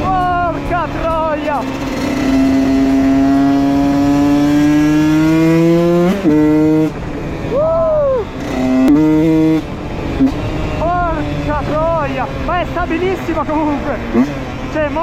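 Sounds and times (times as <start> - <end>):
two-stroke motorcycle engine revving: 0.0 - 15.0.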